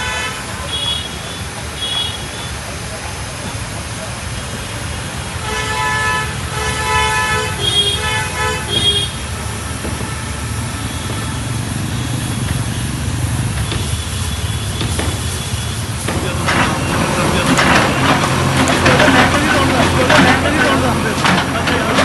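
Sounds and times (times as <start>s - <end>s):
vehicle horns honking: 0.0s - 2.6s, 4.4s - 22.0s
low engine rumble: 6.2s - 22.0s.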